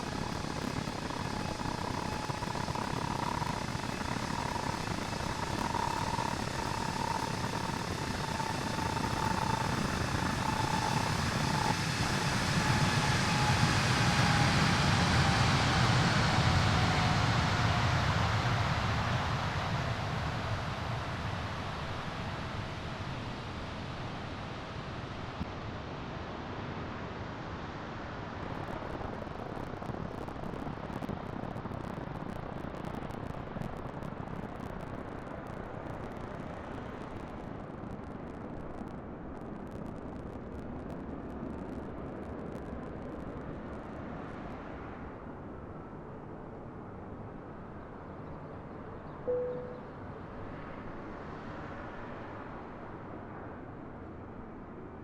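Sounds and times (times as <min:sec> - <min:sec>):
thin whine falling in pitch: 0:00.0 - 0:14.4, 0:49.2 - 0:50.5.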